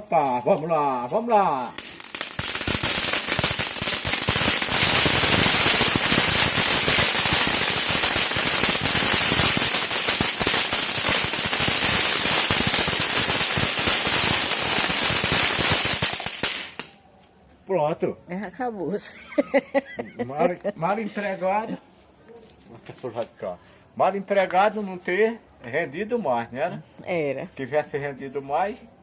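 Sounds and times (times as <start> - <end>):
firework crackling and hissing: 1.1 - 17.0.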